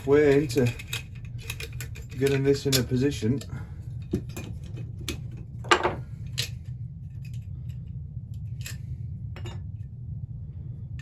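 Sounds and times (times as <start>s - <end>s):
metal tools clinking: 0.0s - 3.5s
steady low hum: 0.0s - 11.0s.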